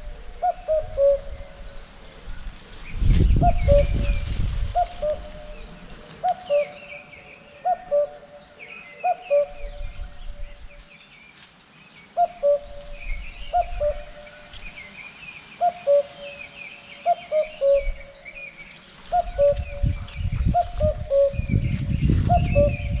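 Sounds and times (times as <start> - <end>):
wind rumble on microphone: 0.0 - 6.2, 9.4 - 10.9, 12.5 - 14.8, 17.6 - 18.4, 19.0 - 23.0
cuckoo calling: 0.0 - 10.9, 12.1 - 23.0
small birds chirping: 0.0 - 23.0.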